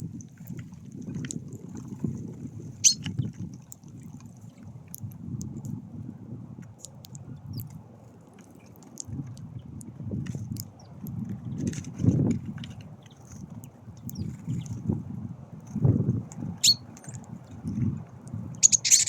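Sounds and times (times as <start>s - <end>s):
wind buffeting microphone: 0.0s - 8.0s, 8.9s - 19.0s
small birds chirping: 2.8s - 3.4s, 13.0s - 14.9s, 16.4s - 19.0s.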